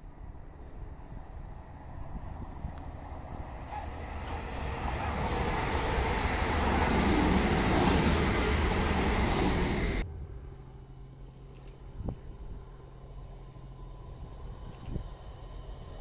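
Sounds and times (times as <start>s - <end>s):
wheels rushing on rail: 0.3s - 10.1s
train passing at speed: 0.4s - 11.4s, 12.2s - 16.0s.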